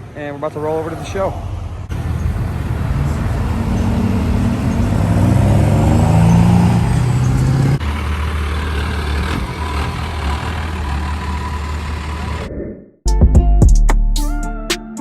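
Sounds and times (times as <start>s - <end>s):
truck engine accelerating: 0.8s - 12.5s.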